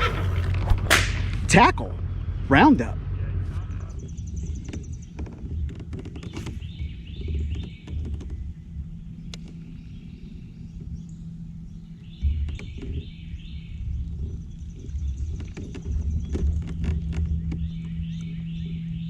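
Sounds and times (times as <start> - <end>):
birds chirping: 0.0 - 19.0
low rumble: 0.0 - 19.0.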